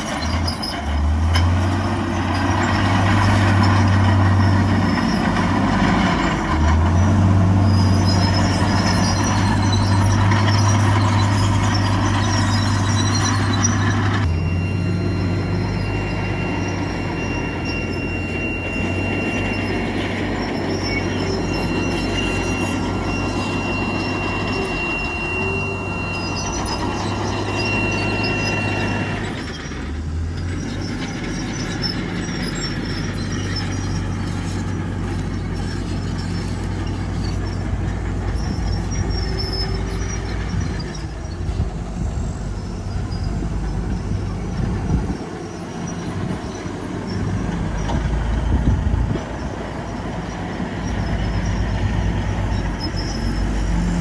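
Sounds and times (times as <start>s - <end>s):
bulldozer diesel engine running: 0.0s - 54.0s
steel tracks squealing and clanking: 0.0s - 54.0s.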